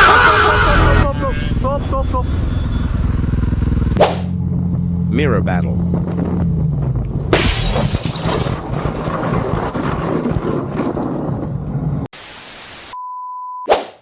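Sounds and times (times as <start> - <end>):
motorcycle engine running: 0.4 - 7.3
loud crash with shattering: 7.3 - 9.4.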